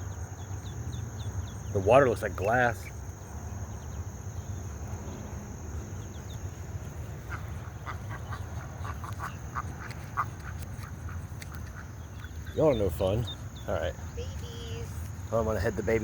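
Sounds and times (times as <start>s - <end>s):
high insect drone: 0.0s - 16.0s
ducks quacking: 7.2s - 13.8s.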